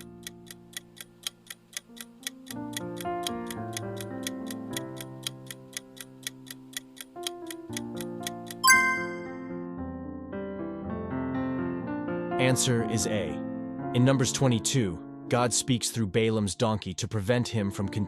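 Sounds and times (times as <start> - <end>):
soft piano music: 0.0 - 1.2, 1.9 - 16.3
clock ticking: 0.0 - 9.4
bright ringing chime: 8.6 - 9.5.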